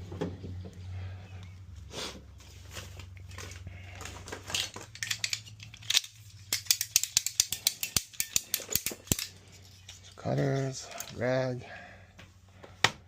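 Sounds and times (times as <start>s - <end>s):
metal hand tools clinking: 4.5s - 11.2s.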